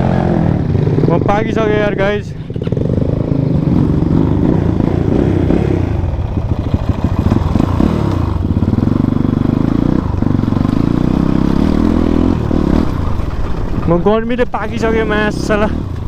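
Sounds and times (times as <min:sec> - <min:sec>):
motorcycle engine revving: 0:00.0 - 0:16.0
knocks and rattles: 0:11.7 - 0:14.8.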